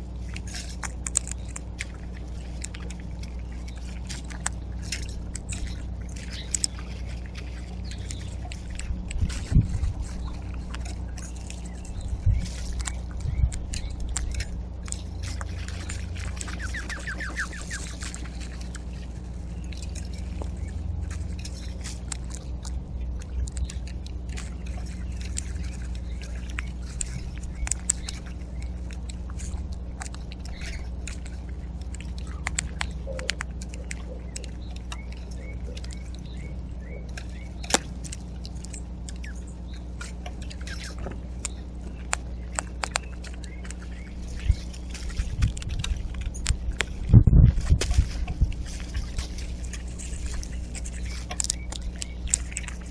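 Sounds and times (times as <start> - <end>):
steady low hum: 0.0 - 52.9
small bird trilling: 16.4 - 18.2
sharp ticks and clicks: 21.4 - 36.5, 37.1 - 48.4, 49.7 - 52.9.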